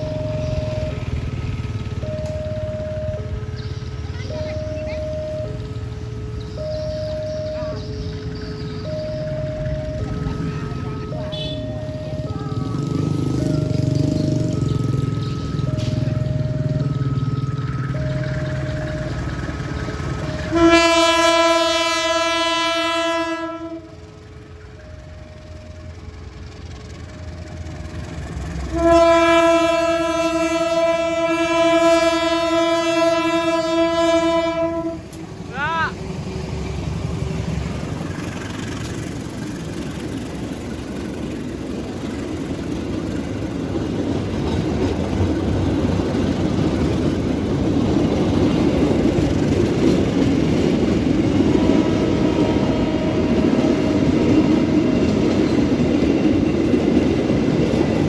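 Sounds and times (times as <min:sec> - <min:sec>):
train rumbling past: 0:00.0 - 0:58.0
train horn blast: 0:09.6 - 0:14.8, 0:20.2 - 0:24.0, 0:28.6 - 0:35.2, 0:51.4 - 0:54.2.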